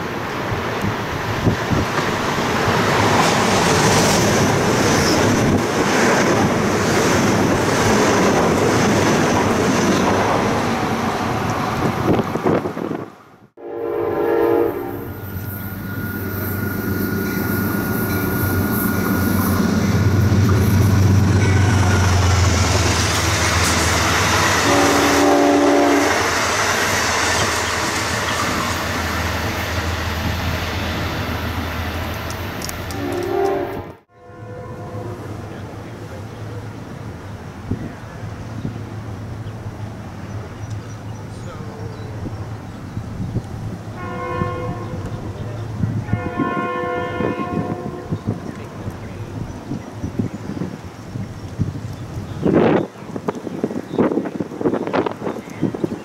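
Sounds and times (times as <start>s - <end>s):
wheel and rail noise: 0.0s - 13.4s, 14.3s - 56.0s
deep locomotive engine rumble: 0.0s - 56.0s
train horn blasts: 13.6s - 15.3s, 24.5s - 26.4s, 32.9s - 35.4s, 44.0s - 45.1s, 46.1s - 48.2s.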